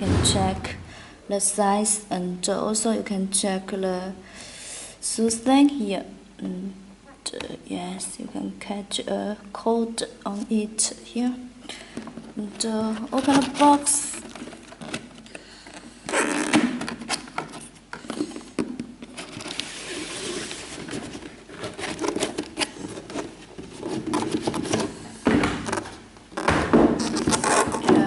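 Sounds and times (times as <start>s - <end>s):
heavy thumps: 0.0s - 1.1s
cardboard box lid scraping: 19.0s - 25.0s.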